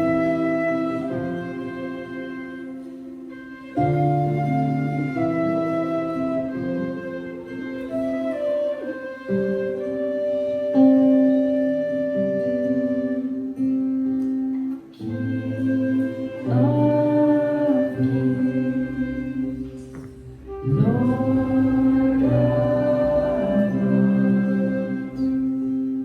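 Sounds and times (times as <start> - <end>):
held instrumental chords: 0.0 - 26.0
people singing worship music: 15.0 - 26.0.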